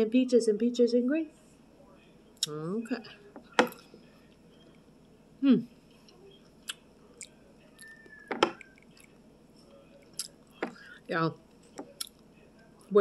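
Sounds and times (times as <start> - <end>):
person chewing food: 5.9 - 9.2, 9.9 - 10.9.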